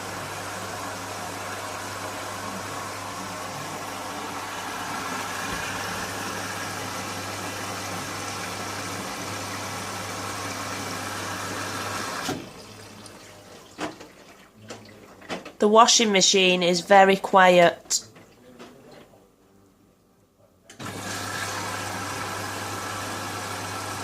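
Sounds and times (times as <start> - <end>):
washing machine running: 0.0 - 15.6, 20.7 - 24.0.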